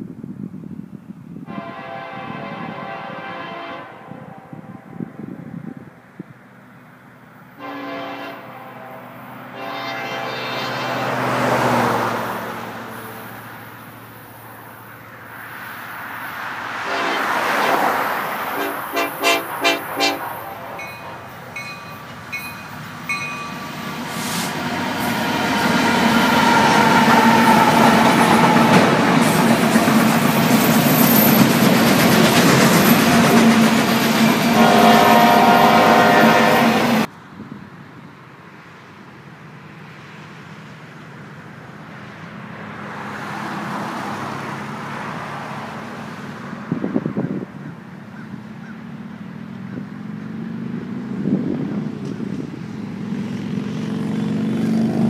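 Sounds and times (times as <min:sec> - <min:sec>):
wind noise: 0:00.0 - 0:03.2, 0:03.8 - 0:06.5, 0:46.5 - 0:47.7, 0:50.6 - 0:53.1
distant train rumble: 0:00.4 - 0:55.0
freight train passing: 0:00.4 - 0:55.0
train air horn: 0:01.4 - 0:05.7, 0:07.5 - 0:11.8, 0:16.8 - 0:21.6, 0:24.1 - 0:31.4, 0:34.3 - 0:37.1.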